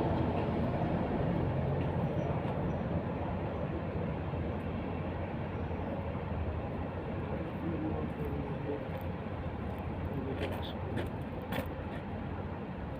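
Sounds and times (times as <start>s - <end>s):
road roller engine running: 0.0s - 12.9s.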